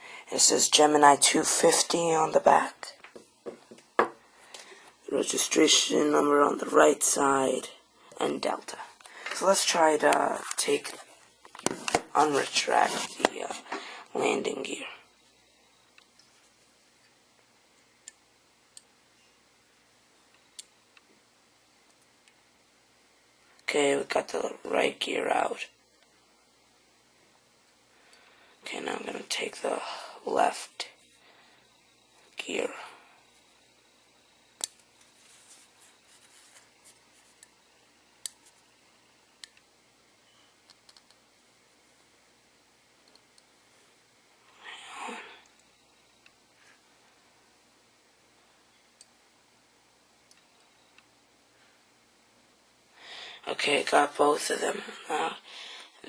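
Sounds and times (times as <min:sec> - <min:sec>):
faint handling and rustling: 0:15.2 - 0:17.9, 0:34.7 - 0:38.9.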